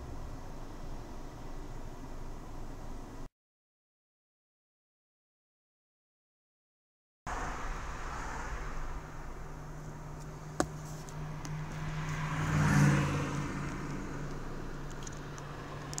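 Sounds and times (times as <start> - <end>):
low hum inside car: 0.0 - 3.3, 7.3 - 16.0
sports car engine accelerating: 7.3 - 16.0.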